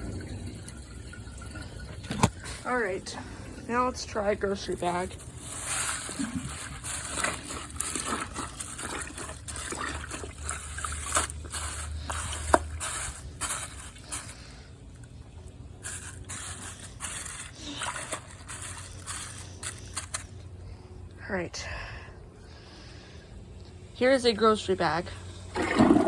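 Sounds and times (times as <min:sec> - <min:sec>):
water running in a toilet: 0:00.0 - 0:19.5, 0:23.9 - 0:26.0
handling rustles and clicks: 0:15.8 - 0:20.4.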